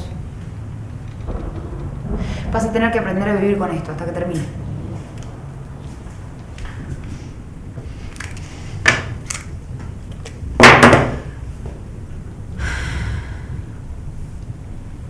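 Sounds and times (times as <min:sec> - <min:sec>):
noisy rush: 0:00.0 - 0:15.0
sharp knocks and thuds: 0:01.0 - 0:03.3, 0:10.6 - 0:11.8.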